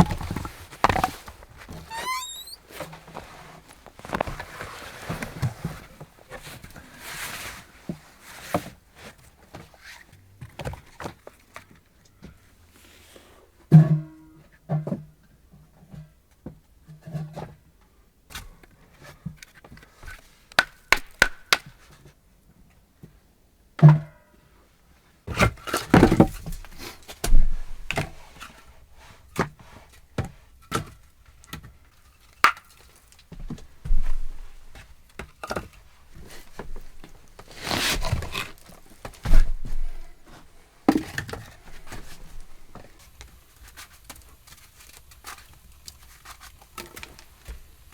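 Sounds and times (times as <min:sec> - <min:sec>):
rustling scrapes: 0:00.2 - 0:05.8, 0:36.1 - 0:40.8.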